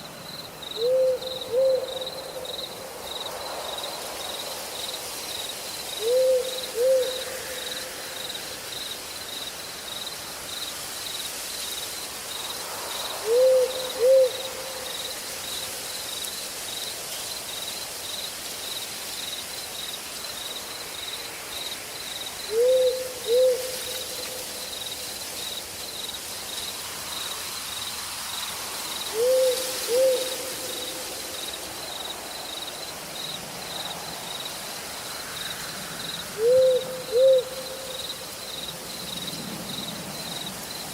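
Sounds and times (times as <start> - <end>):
insects trilling: 0.0 - 40.9
owl hooting: 0.8 - 2.4, 6.0 - 7.6, 13.2 - 14.8, 22.5 - 24.0, 29.1 - 30.9, 36.4 - 38.0.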